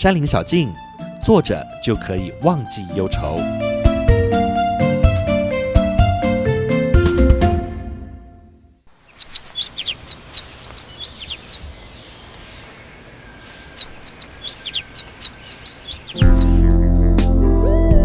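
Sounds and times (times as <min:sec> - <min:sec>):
background music: 0:00.0 - 0:08.8, 0:16.2 - 0:18.0
small birds chirping: 0:08.9 - 0:16.7
forest ambience hiss: 0:08.9 - 0:16.8.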